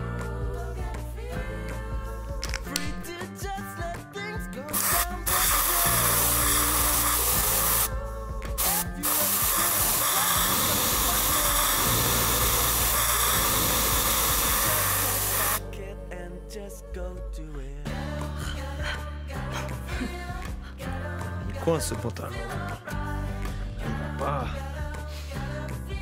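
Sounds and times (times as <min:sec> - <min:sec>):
background music: 0:00.0 - 0:26.0
aerosol spray hissing: 0:04.8 - 0:07.9, 0:08.6 - 0:15.6.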